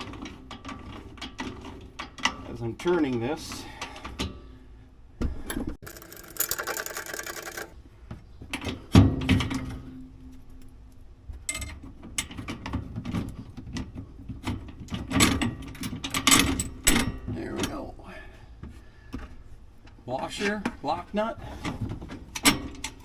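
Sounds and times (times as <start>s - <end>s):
metal parts clanking: 5.8s - 7.7s.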